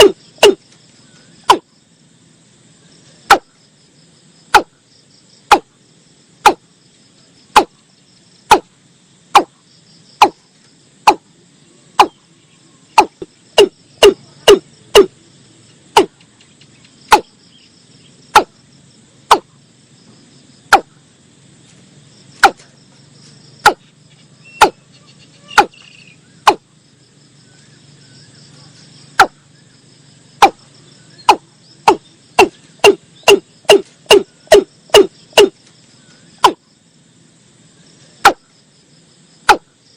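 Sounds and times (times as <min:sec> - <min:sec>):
bird calling hollow notes: 0:00.0 - 0:00.6, 0:12.0 - 0:12.2, 0:13.0 - 0:15.1, 0:17.1 - 0:17.3, 0:24.4 - 0:24.8, 0:25.4 - 0:26.6, 0:31.2 - 0:35.6.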